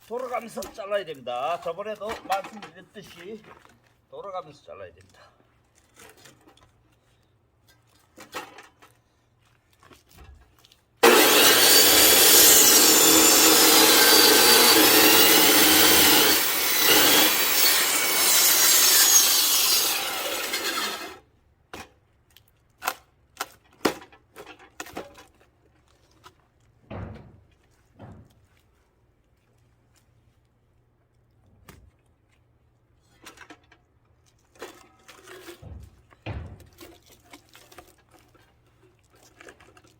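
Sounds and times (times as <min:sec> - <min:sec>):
power saw cutting log: 0:11.0 - 0:21.2
wood knocks and clicks: 0:35.6 - 0:36.9.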